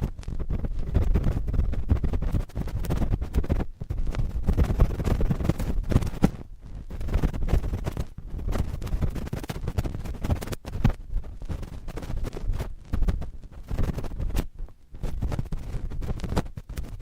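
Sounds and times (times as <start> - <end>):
cotton swabs scratching microphone: 0.0 - 17.0.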